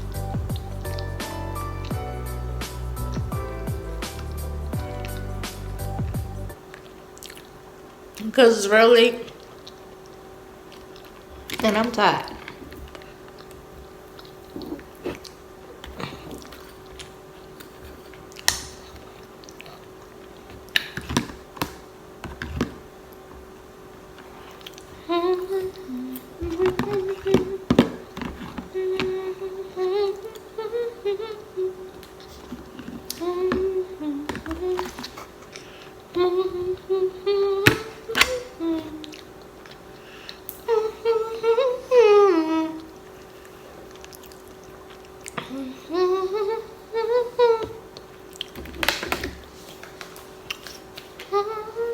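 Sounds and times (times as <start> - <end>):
chewing and wet mouth noises: 0.0 - 2.0, 4.1 - 8.2, 9.3 - 21.0, 24.2 - 25.1, 42.8 - 45.5, 47.9 - 48.6
faint steady hum: 0.0 - 51.9
woman humming: 24.9 - 35.3, 36.1 - 39.3, 40.6 - 43.0, 45.4 - 47.9, 51.2 - 51.9.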